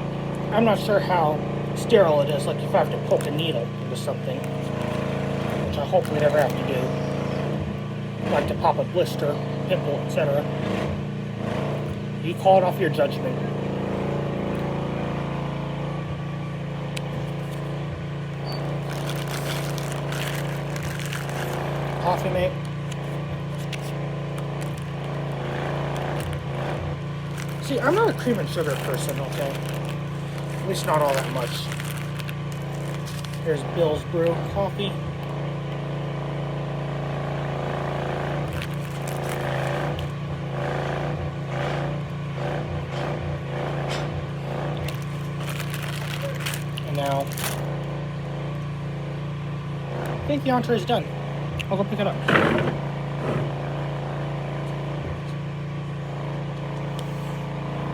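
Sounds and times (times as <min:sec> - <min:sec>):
low mechanical hum: 0:00.0 - 0:57.9
plastic packets crinkling: 0:04.4 - 0:06.7, 0:17.0 - 0:17.7, 0:18.4 - 0:34.4, 0:38.4 - 0:40.2, 0:44.8 - 0:47.7.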